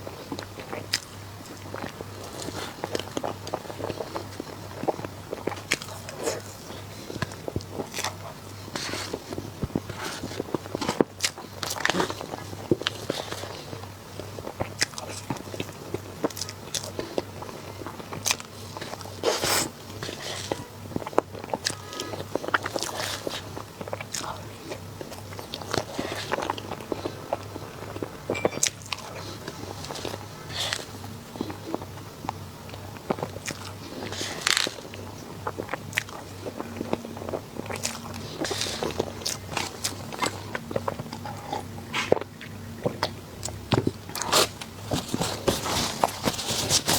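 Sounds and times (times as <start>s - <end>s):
biting and chewing clicks: 0.3s - 45.2s
crunching bite: 33.0s - 42.3s.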